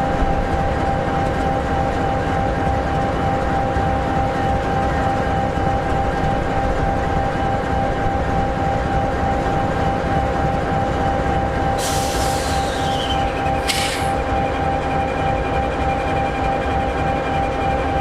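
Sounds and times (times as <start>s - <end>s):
diesel locomotive idling: 0.0s - 18.0s
short hiss: 13.7s - 14.2s.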